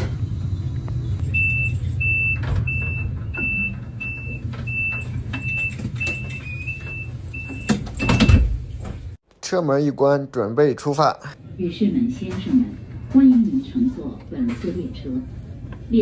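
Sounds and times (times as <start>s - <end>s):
low hum of train: 0.0s - 9.2s, 11.4s - 16.0s
train doors thumping shut: 1.2s - 9.2s.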